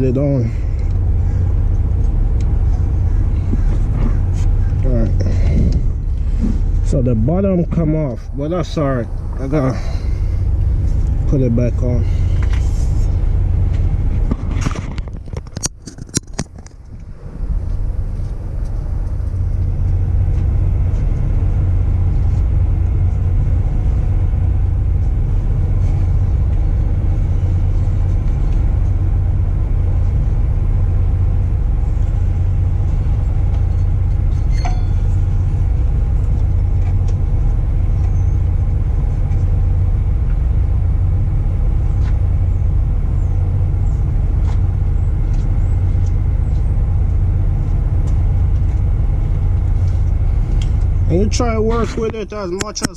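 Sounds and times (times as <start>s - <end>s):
engine idling: 0.0s - 52.9s
metallic clink: 34.5s - 35.1s.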